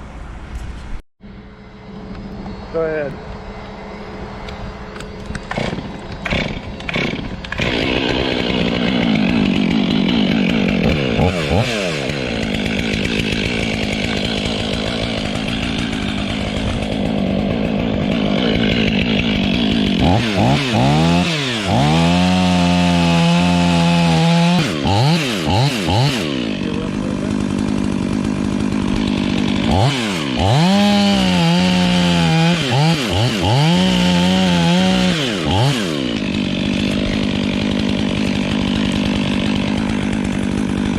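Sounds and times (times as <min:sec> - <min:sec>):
chainsaw cutting wood: 0:04.8 - 0:40.9.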